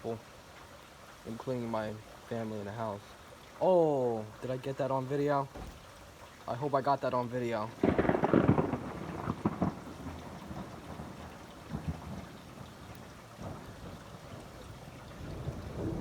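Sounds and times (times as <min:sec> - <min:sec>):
rain falling: 0:00.0 - 0:16.0
thunder rumbling: 0:07.8 - 0:16.0.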